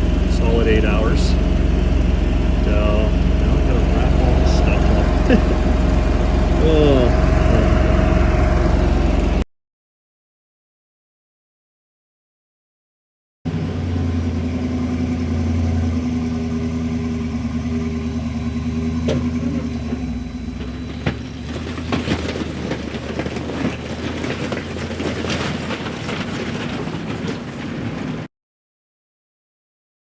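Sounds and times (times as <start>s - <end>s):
engine running: 0.0s - 9.4s, 13.5s - 28.3s
clicks and rattling: 18.7s - 28.3s.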